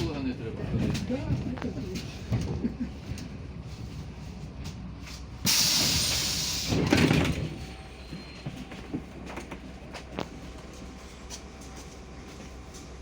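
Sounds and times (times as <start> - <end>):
bus low hum: 0.0 - 13.0
loud hiss of released air: 5.5 - 6.8.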